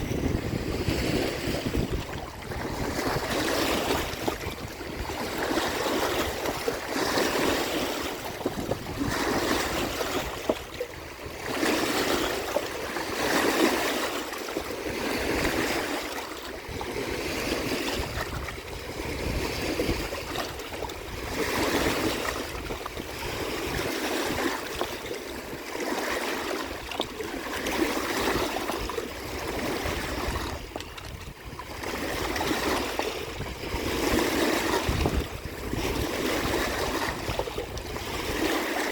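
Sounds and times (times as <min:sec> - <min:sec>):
waves washing against shore: 0:00.0 - 0:38.9.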